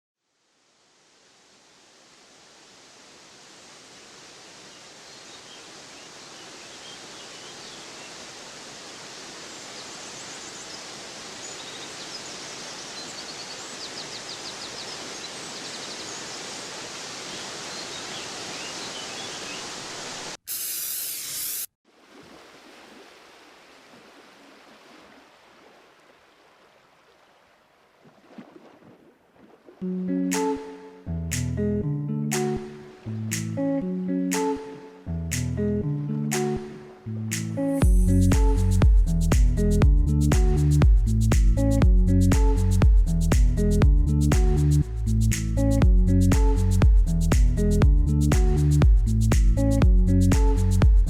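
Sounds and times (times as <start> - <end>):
waterfall and rapids rushing: 0.4 - 20.4, 21.9 - 31.5, 32.3 - 38.7.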